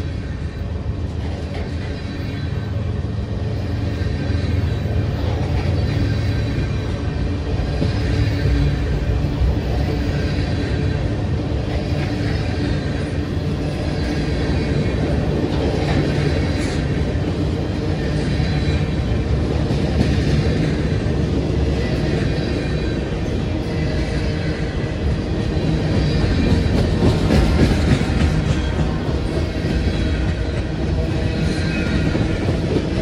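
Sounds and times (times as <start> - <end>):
clickety-clack over rail joints: 0.0 - 33.0
freight train wheels rumbling: 0.0 - 33.0.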